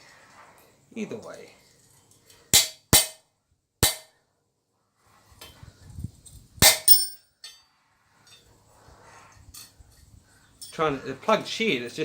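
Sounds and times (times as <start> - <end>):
hammer striking steel: 2.5 - 3.2, 3.8 - 4.1, 6.6 - 7.6.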